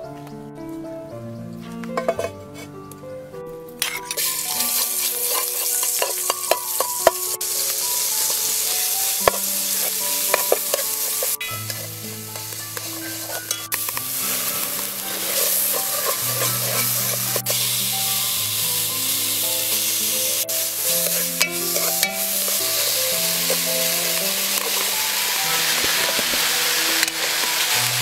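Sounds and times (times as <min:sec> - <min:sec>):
background music: 0:00.0 - 0:28.0
metal ladle scraping pot: 0:02.0 - 0:02.7, 0:03.8 - 0:18.3, 0:19.6 - 0:27.8
food sizzling in a pot: 0:03.8 - 0:28.0.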